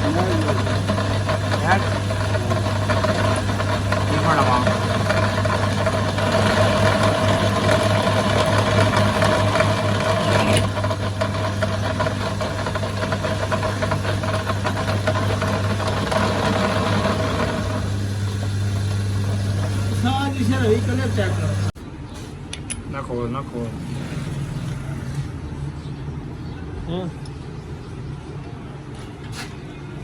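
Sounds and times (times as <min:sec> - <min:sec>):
fast knocking rattle: 0:00.0 - 0:19.0
machine humming: 0:00.0 - 0:21.8.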